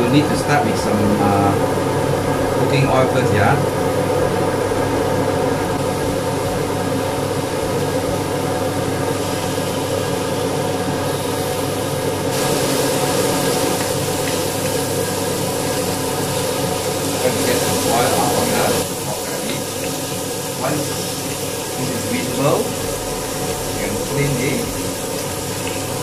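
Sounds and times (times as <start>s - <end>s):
steady mechanical hum: 0.0s - 26.0s
meat sizzling in hot oil: 0.1s - 26.0s.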